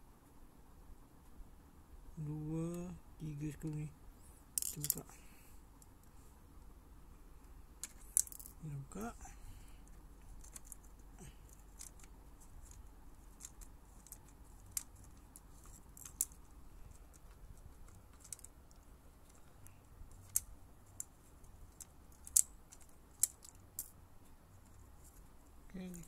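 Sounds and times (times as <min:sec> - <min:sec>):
screwdriver and plastic parts clicking: 0:17.0 - 0:19.5.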